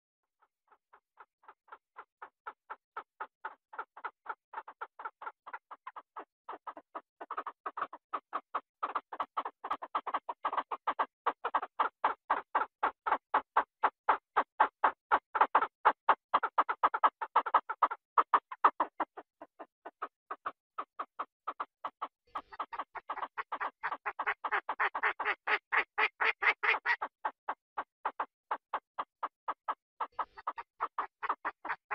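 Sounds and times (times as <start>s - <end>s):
duck quacking rapidly: 22.3s - 27.1s, 30.1s - 31.9s.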